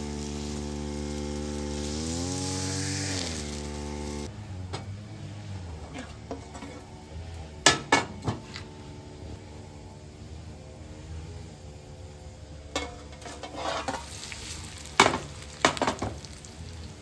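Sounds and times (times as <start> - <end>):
motor hum: 0.0 - 13.5.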